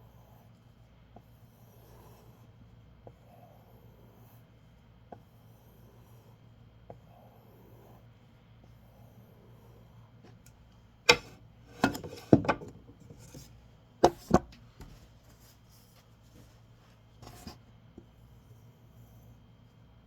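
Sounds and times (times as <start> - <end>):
faint blade scraping: 17.2 - 17.6.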